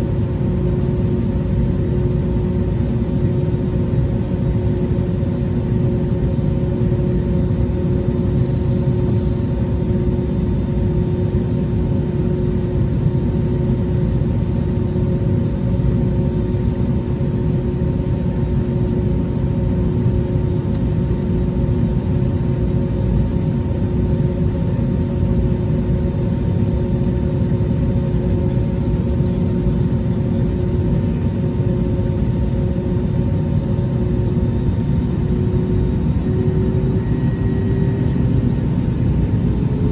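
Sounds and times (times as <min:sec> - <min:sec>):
jet engines rumbling: 0:16.2 - 0:39.9.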